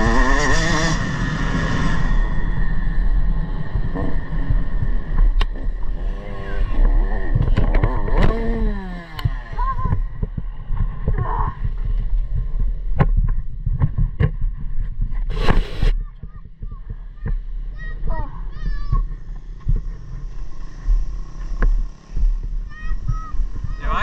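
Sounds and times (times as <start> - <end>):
dirt bike engine revving: 0.0 - 11.7, 17.0 - 24.0
wind rumble on microphone: 0.0 - 24.0.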